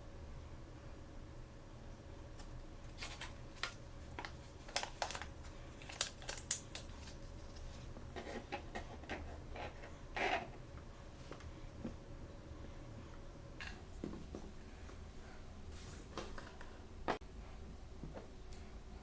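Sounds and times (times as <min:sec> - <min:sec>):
packaging crinkling: 0:02.9 - 0:07.9
packaging rustling: 0:03.0 - 0:07.9.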